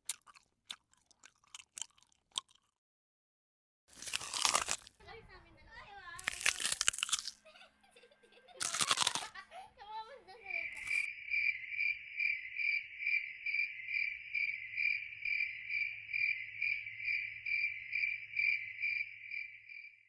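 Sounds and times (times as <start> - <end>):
cricket chirping: 10.4 - 20.0.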